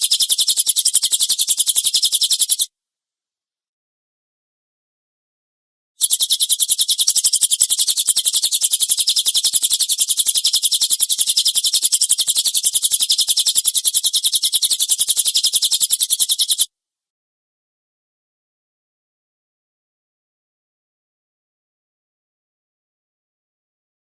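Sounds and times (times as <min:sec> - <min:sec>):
bird rapid rough trill: 0:00.0 - 0:02.7, 0:06.0 - 0:16.7.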